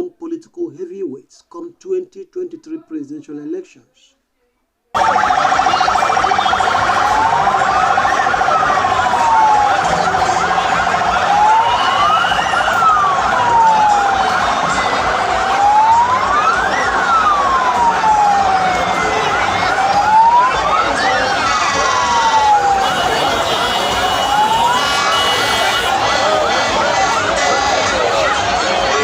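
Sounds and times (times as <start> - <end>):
dense background noise: 4.9 - 29.0
siren wailing: 5.0 - 29.0.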